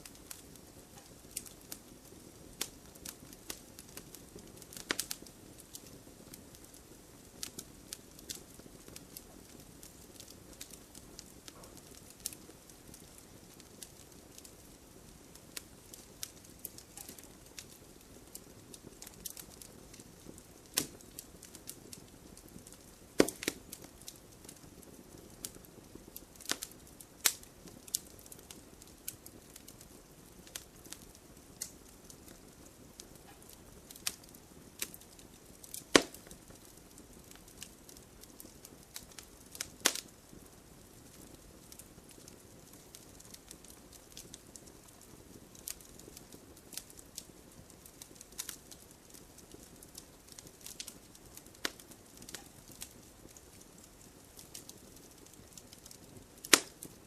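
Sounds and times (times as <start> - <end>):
flames hissing: 0.0 - 57.0
wood fire crackling: 0.0 - 57.0.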